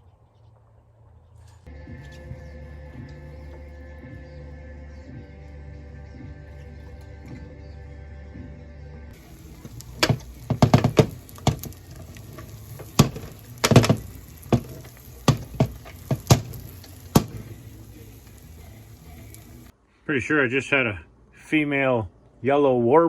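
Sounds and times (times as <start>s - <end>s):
sharp knocks or clicks: 9.2s - 17.5s
faint steady hiss: 9.2s - 22.0s.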